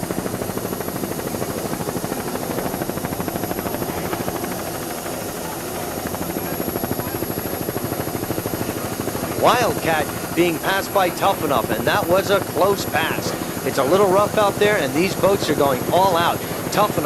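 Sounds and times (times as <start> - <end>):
helicopter engine noise: 0.0 - 17.0
helicopter rotor chopping: 0.0 - 17.0.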